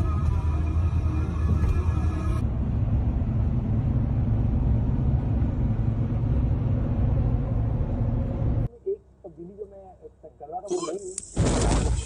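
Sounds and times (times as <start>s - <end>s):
moving car rumble: 0.0s - 9.2s.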